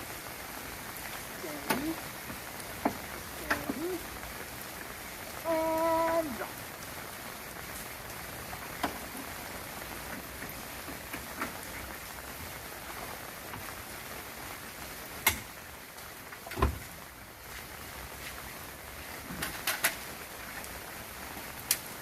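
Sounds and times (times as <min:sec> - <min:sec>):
steady rain falling: 0:00.0 - 0:22.0
sharp drip-like ticks: 0:00.9 - 0:04.6, 0:07.6 - 0:12.5, 0:15.2 - 0:16.8, 0:21.5 - 0:21.9.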